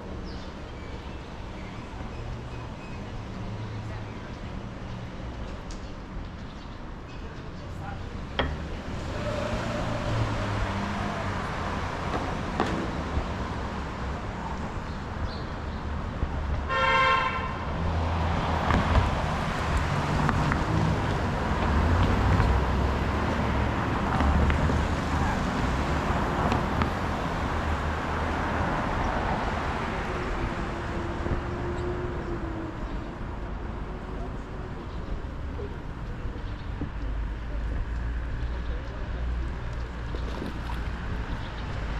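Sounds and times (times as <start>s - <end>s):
traffic rumble: 0.0s - 41.9s
short vehicle horn toot: 16.7s - 17.5s.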